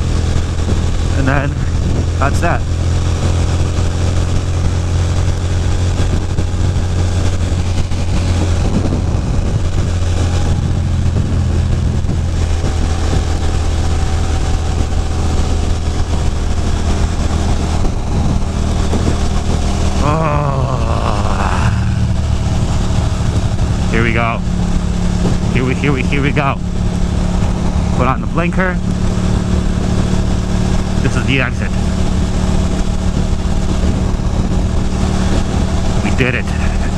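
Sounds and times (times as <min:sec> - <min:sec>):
motorcycle engine cruising: 0:00.0 - 0:36.9
wind noise on microphone: 0:00.0 - 0:36.9
person speaking: 0:20.0 - 0:22.2, 0:23.9 - 0:24.4, 0:25.5 - 0:26.6, 0:31.0 - 0:31.8, 0:36.0 - 0:36.9.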